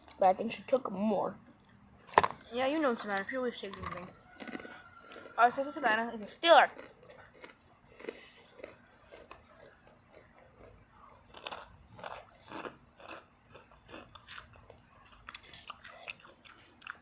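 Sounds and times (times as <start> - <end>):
crunching tortilla chips: 3.8 - 5.5, 6.7 - 17.0.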